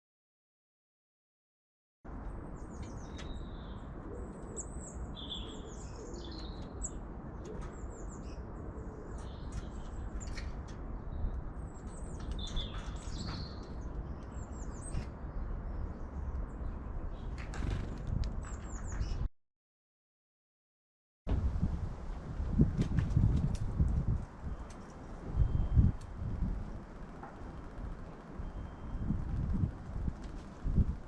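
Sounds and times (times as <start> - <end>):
small birds chirping: 2.6 - 19.3.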